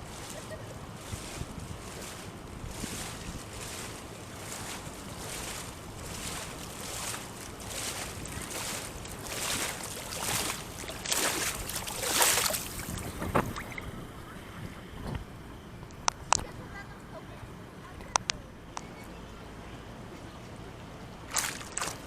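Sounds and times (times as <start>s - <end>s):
water sloshing and splashing: 0.0s - 16.5s, 21.2s - 22.0s
wind buffeting microphone: 0.0s - 16.8s.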